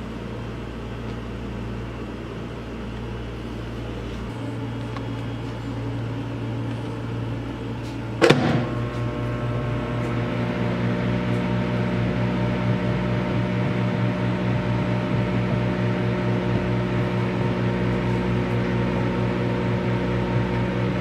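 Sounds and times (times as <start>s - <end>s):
microwave oven humming: 0.0s - 21.0s
sudden loud crack: 8.2s - 8.9s.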